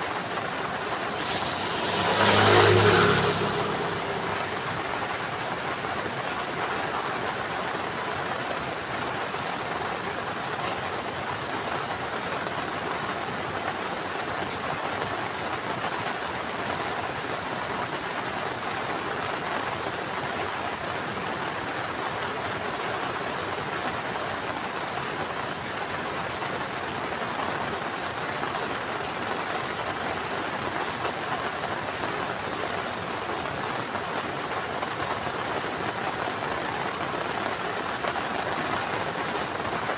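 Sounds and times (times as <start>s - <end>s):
heavy rain falling: 0.0s - 7.0s.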